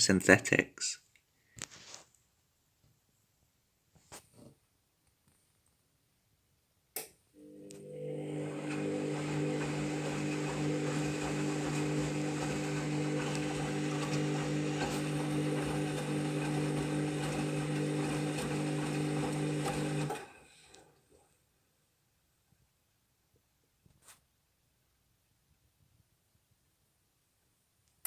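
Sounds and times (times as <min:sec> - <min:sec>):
washing machine motor hum: 0:07.4 - 0:21.2.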